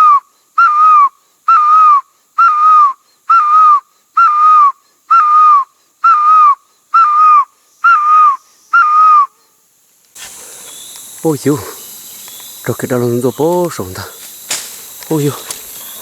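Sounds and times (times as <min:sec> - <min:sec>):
whistled bird-like call: 0:00.0 - 0:09.3.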